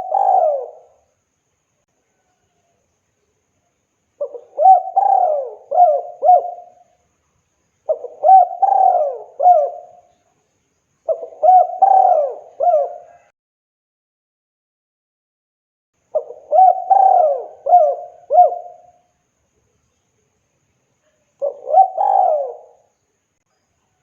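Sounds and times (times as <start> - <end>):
dove cooing: 0.0 - 1.0, 4.2 - 6.8, 7.9 - 10.1, 11.1 - 13.3, 16.2 - 19.0, 21.4 - 22.9.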